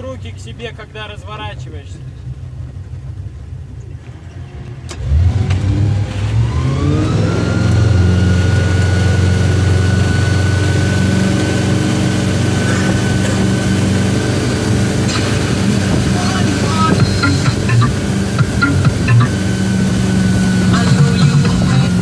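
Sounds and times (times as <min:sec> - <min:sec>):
boat engine accelerating: 0:00.0 - 0:22.0.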